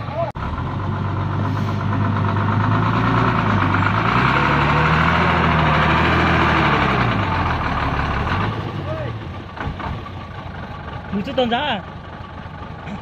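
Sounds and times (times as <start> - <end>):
diesel truck engine under load: 0.0 - 13.0.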